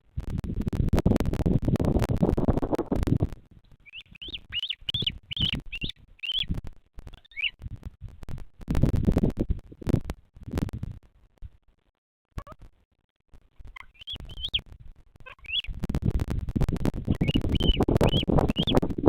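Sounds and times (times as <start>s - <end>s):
bird chirping: 3.8s - 6.5s, 7.1s - 7.6s, 13.7s - 14.6s, 15.2s - 15.8s, 17.1s - 18.9s.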